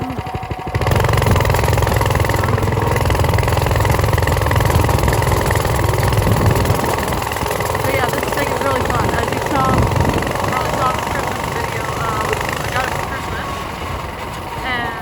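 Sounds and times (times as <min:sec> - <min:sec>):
motorcycle engine running: 0:00.0 - 0:15.0
wind rushing noise: 0:04.0 - 0:15.0.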